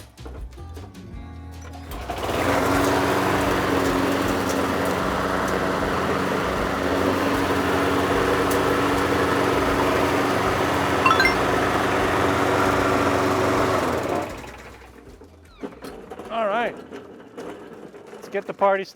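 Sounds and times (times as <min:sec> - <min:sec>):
lawn mower engine starting and running: 0:01.9 - 0:15.0.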